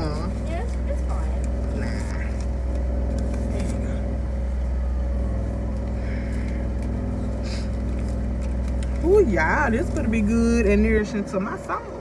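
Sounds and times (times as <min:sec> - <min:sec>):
car engine idling: 0:00.0 - 0:12.0
faint clicks and rustles: 0:00.2 - 0:04.7, 0:05.4 - 0:10.3.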